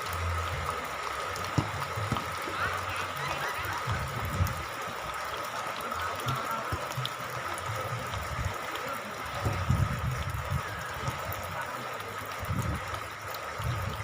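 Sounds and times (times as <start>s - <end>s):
steady rain hiss: 0.0s - 14.0s
low thuds: 1.4s - 2.4s.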